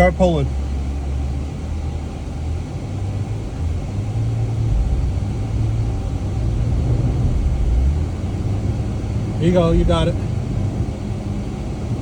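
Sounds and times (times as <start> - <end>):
engine running under load: 0.0 - 12.0.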